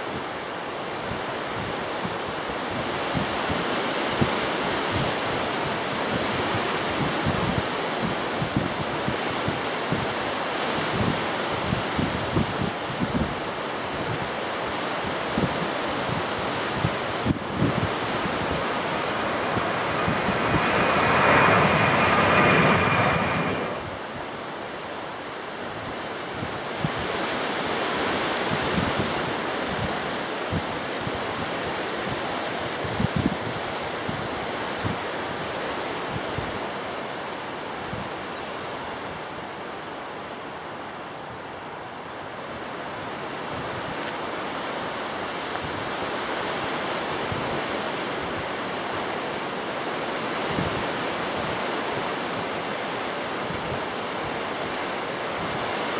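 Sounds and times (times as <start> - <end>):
gusty wind buffeting microphone: 15.4 - 24.6.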